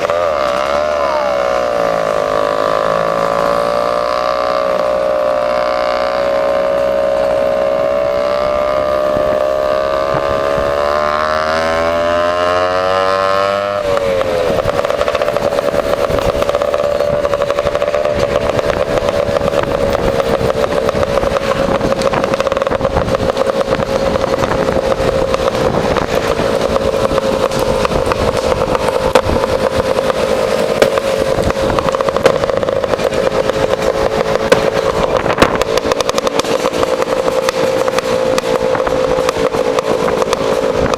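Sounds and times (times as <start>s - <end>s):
two-stroke scooter engine: 0.0s - 40.9s.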